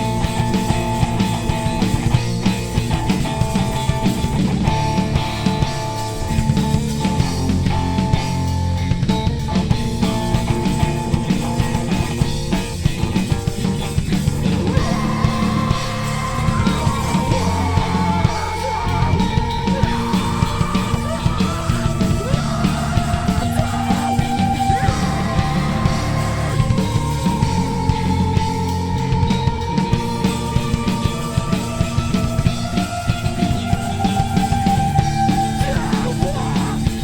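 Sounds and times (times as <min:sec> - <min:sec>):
heavy rock band playing: 0:00.0 - 0:37.0
sustained high melody line: 0:14.7 - 0:37.0.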